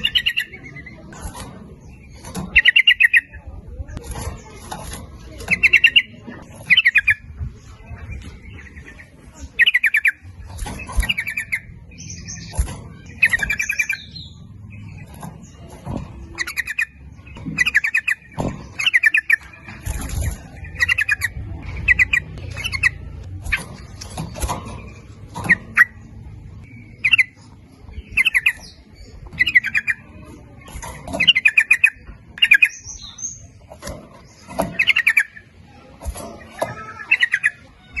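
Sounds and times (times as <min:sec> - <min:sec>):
bulbuls chattering song: 0:00.0 - 0:38.0.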